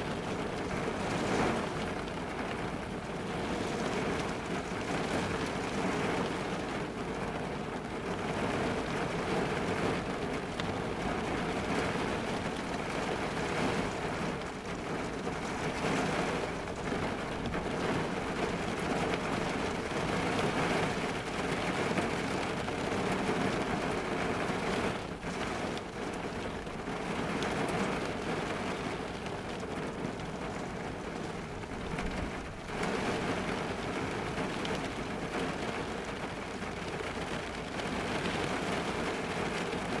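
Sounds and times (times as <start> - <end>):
heavy rain drumming on a car: 0.0 - 40.0.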